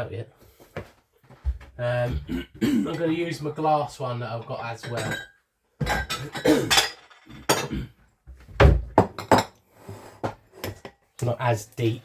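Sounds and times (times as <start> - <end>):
dishes clattering: 4.8 - 7.8, 8.7 - 9.6
bowls knocking on a worktop: 8.6 - 9.6.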